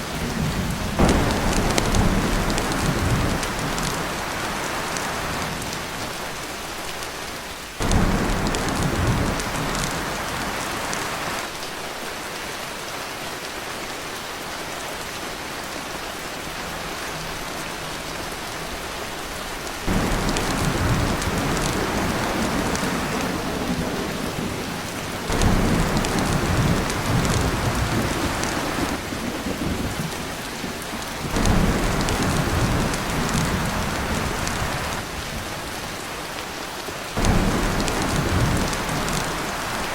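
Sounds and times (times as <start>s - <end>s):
heavy rain on a tin roof: 0.0s - 39.9s
thunder rumbling: 0.1s - 6.0s, 7.8s - 11.5s, 19.9s - 35.0s, 37.2s - 39.9s.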